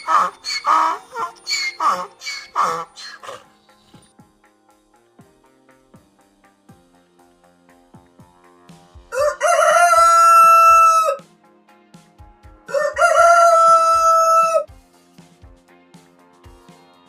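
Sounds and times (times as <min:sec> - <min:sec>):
rooster crowing: 0:00.0 - 0:03.4, 0:09.1 - 0:11.2, 0:12.7 - 0:14.7
quiet background music: 0:00.0 - 0:17.0.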